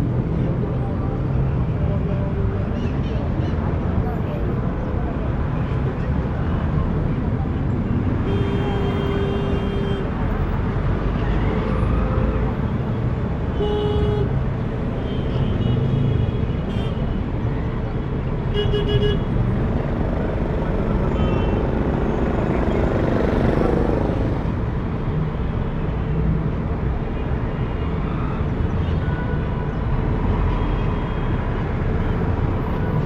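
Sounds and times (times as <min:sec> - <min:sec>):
traffic rumble: 0:16.4 - 0:27.5
car horn toot: 0:18.6 - 0:24.5
vehicle passing by: 0:18.7 - 0:25.0.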